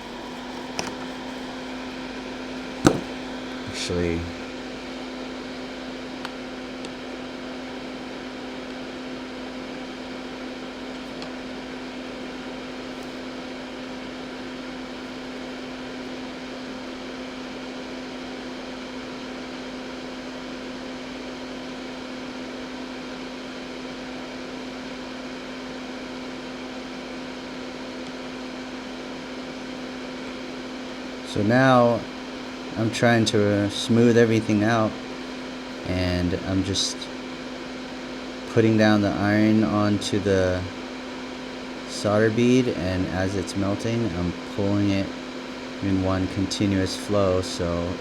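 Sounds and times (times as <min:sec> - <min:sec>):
electric fan humming: 0:00.0 - 0:48.0.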